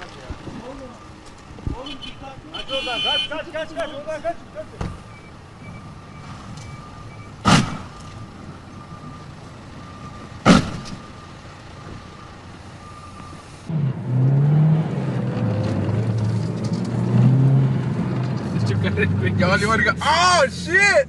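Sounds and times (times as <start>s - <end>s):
low wavering vehicle engine: 3.4s - 21.0s
repeating electronic beep: 5.0s - 7.4s
sharp bangs: 7.4s - 8.1s, 10.4s - 11.1s.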